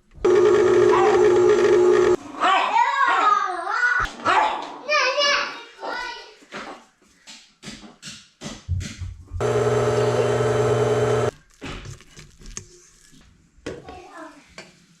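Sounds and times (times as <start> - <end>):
kitchen appliance motor running: 0.2 - 2.2, 9.4 - 11.3.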